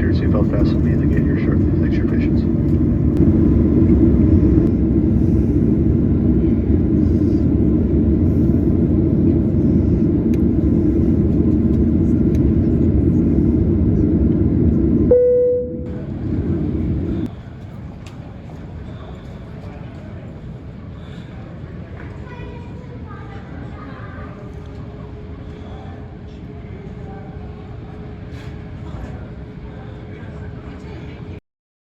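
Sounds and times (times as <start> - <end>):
airplane cabin rumble: 0.0 - 23.8.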